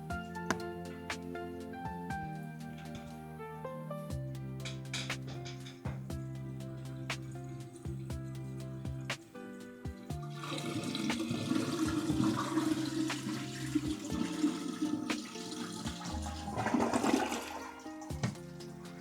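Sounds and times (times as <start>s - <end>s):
background music: 0.0s - 19.0s
toilet flushing: 10.2s - 19.0s.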